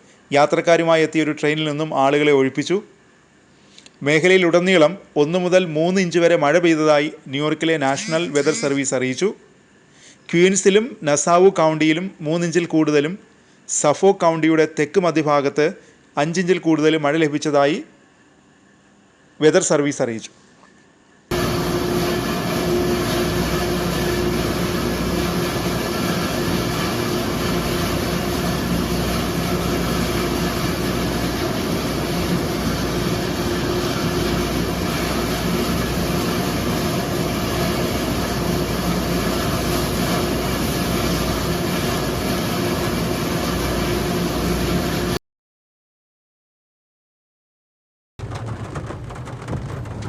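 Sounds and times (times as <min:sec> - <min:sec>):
train rumbling: 0:21.3 - 0:43.0, 0:48.2 - 0:50.0.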